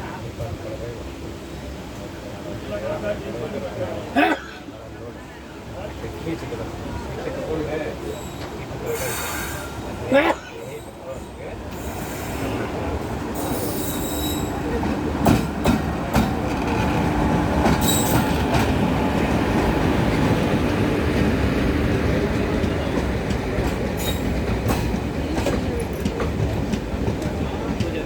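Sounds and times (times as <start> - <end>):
high wheel squeals: 8.0 - 9.9, 13.4 - 14.6, 17.8 - 18.3
train wheels rumbling on rails: 10.7 - 28.0.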